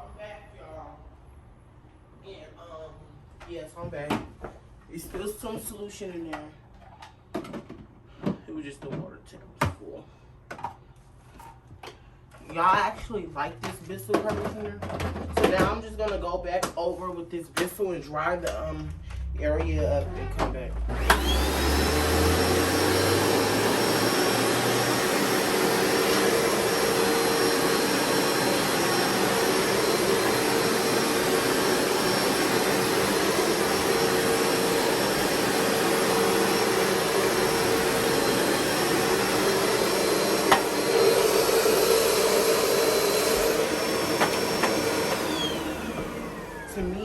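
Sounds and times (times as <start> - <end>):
carpet cleaner motor whining: 20.0 - 47.0.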